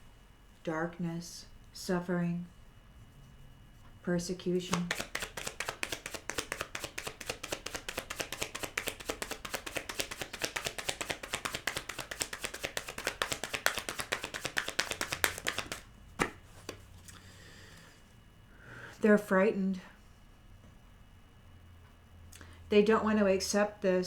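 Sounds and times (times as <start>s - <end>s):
cards being shuffled: 4.6s - 16.9s
single card taps: 4.7s - 16.8s.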